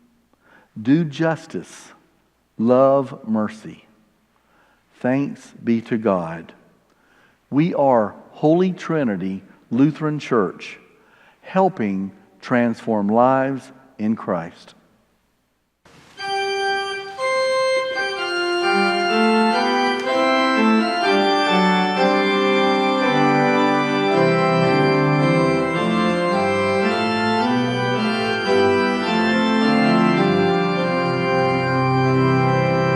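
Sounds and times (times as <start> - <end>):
organ music: 15.9 - 32.9.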